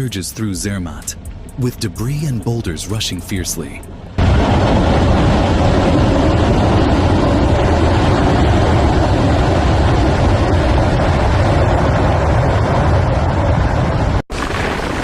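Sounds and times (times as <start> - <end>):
debris flow rushing rumble: 3.6 - 15.0.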